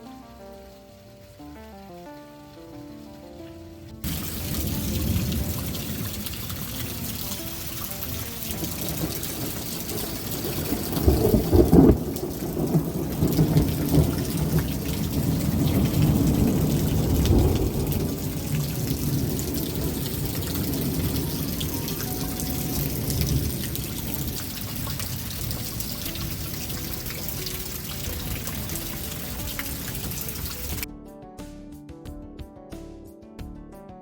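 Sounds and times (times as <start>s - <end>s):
rain falling: 0.0s - 30.9s
thunder rumbling: 4.0s - 30.9s.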